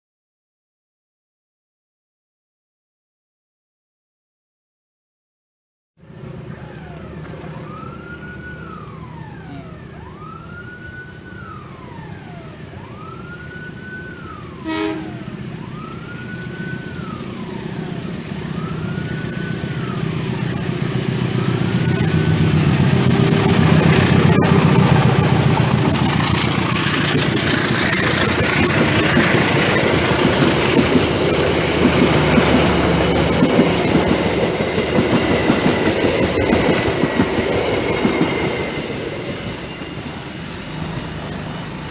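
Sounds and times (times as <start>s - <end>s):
locomotive engine rumble: 6.0s - 41.9s
siren-like rising and falling tone: 6.3s - 41.9s
wheels clattering over rail joints: 22.6s - 41.9s.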